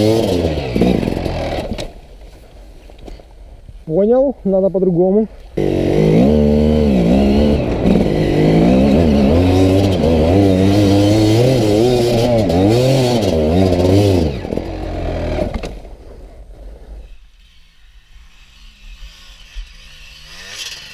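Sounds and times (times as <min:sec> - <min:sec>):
two-stroke engine revving: 0:00.0 - 0:02.0, 0:05.6 - 0:15.7, 0:18.3 - 0:20.9.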